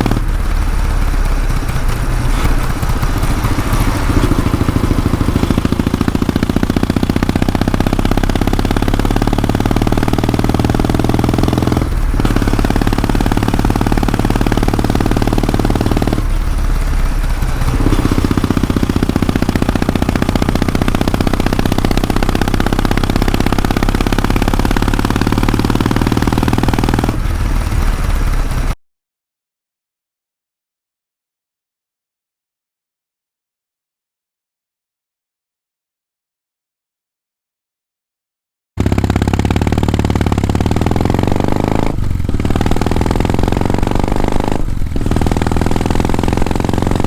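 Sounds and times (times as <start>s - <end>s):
motorcycle engine running: 0.0s - 28.8s, 38.8s - 47.0s.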